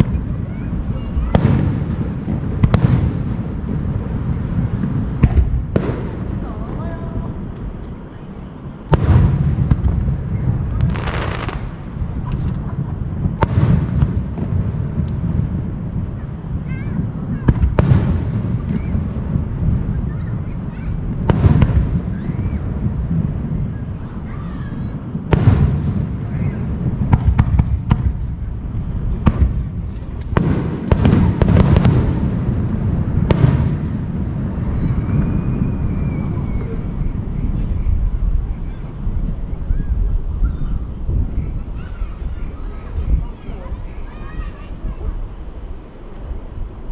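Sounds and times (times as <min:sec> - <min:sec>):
low rumble: 0:00.0 - 0:43.4
crackling hiss: 0:00.0 - 0:46.9
fireworks bangs: 0:00.0 - 0:46.9
rushing hiss: 0:00.1 - 0:46.9
firework shell bangs: 0:08.9 - 0:15.5.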